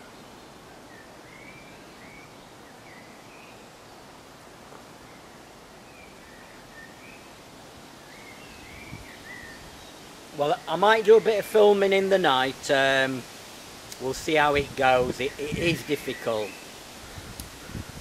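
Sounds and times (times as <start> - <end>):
bird chirping: 0.0 - 3.8, 8.0 - 11.6
woodland background hush: 0.0 - 18.0.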